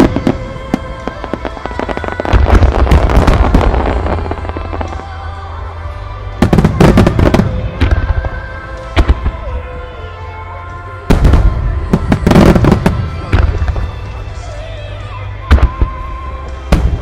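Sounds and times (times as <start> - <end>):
fireworks bursting and crackling: 0.0 - 9.8, 11.0 - 14.8, 15.5 - 17.0
music: 0.0 - 17.0.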